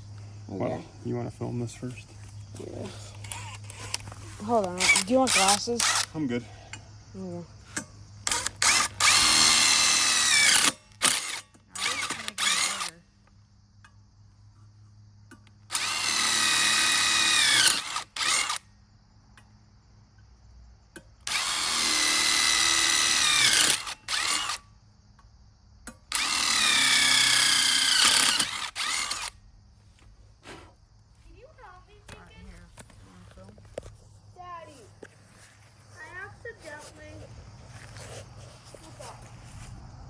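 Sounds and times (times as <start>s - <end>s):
power drill boring into metal: 4.8s - 6.1s, 8.2s - 13.0s, 15.7s - 18.6s, 21.2s - 24.6s, 26.1s - 29.3s.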